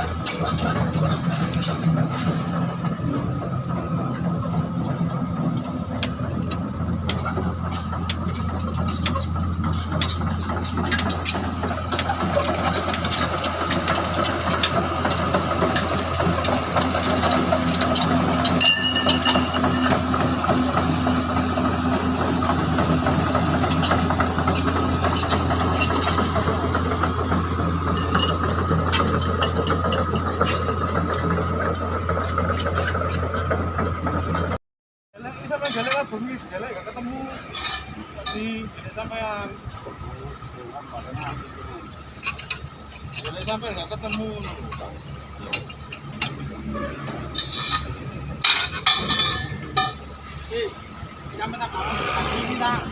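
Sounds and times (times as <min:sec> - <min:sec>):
engine idling: 0:00.0 - 0:34.6
metallic clanks and taps: 0:05.9 - 0:20.9, 0:42.2 - 0:46.5, 0:47.3 - 0:50.1.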